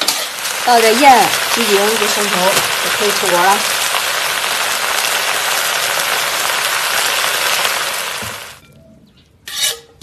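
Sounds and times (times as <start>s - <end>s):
metal spatula clanking on wok: 0.0s - 0.4s
vegetables sizzling in a wok: 0.0s - 8.6s.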